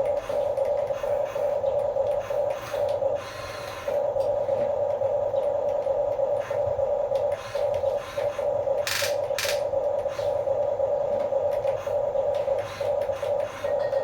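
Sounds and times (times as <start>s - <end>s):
toy electric motors whining: 0.0s - 5.0s, 5.7s - 10.5s, 11.5s - 14.0s.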